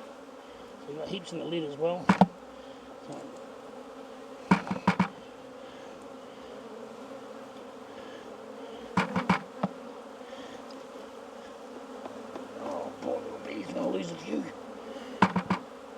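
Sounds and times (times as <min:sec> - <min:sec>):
bees buzzing: 0:00.0 - 0:15.9
sharp knocks: 0:02.0 - 0:02.4, 0:04.5 - 0:05.2, 0:09.0 - 0:09.8, 0:15.2 - 0:15.7.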